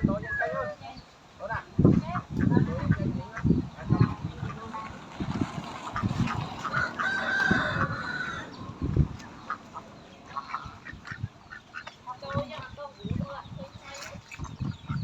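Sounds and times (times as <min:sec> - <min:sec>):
rooster crowing: 0:06.6 - 0:08.6.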